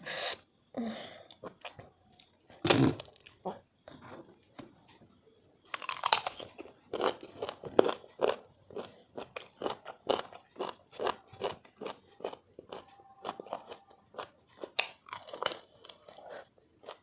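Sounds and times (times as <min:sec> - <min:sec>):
crunchy chewing: 0:05.7 - 0:17.0.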